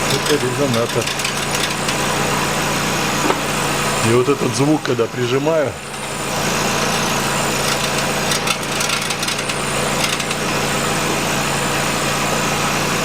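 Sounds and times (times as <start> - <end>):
heat shield rattling: 0.0 - 2.1, 5.9 - 10.6
engine idling: 0.0 - 4.2, 5.8 - 12.1.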